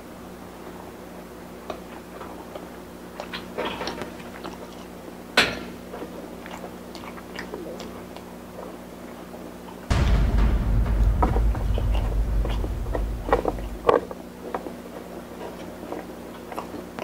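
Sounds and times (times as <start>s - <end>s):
chewing and wet mouth sounds: 5.9s - 8.8s.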